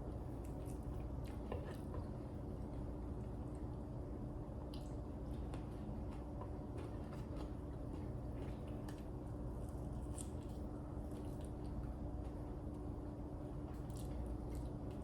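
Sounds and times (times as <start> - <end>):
crunchy chewing of chicken wings: 4.6 - 15.0.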